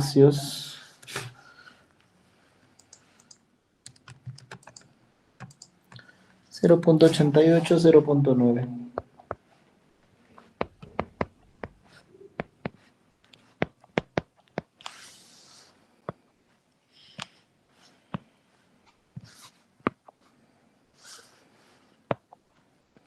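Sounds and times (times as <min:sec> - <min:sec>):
mouse and keyboard clicks: 0:02.8 - 0:06.0.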